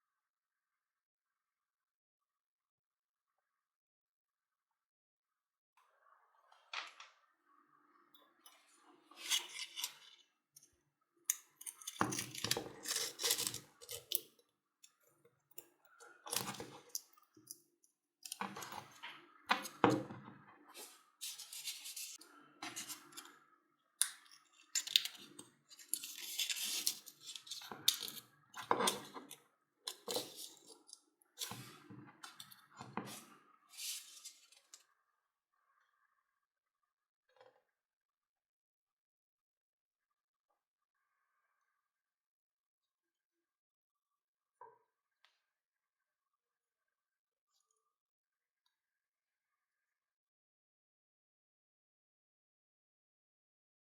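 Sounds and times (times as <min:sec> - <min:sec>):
rustling and scraping of hand work: 0:09.1 - 0:10.2, 0:11.6 - 0:14.3, 0:15.9 - 0:17.0, 0:18.2 - 0:23.4, 0:24.4 - 0:34.8.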